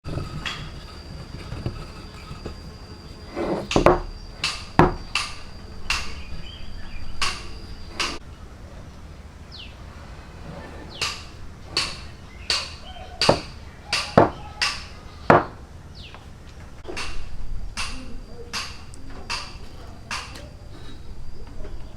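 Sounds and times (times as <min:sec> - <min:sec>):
hand tools striking wood: 0:03.3 - 0:06.4, 0:07.2 - 0:08.2, 0:10.9 - 0:15.6, 0:16.8 - 0:20.5.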